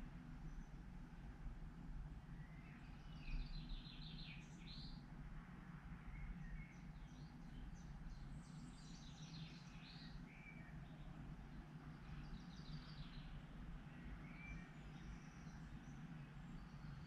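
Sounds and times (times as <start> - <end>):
low steady hum: 0.0 - 17.0
songbird chirping through speakers: 2.4 - 5.0, 6.1 - 11.2, 11.9 - 17.0.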